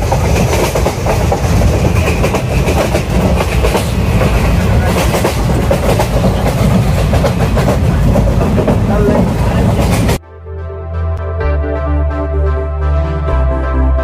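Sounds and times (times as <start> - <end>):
train rumbling: 0.0 - 10.2
wheels clattering on rails: 0.0 - 10.2.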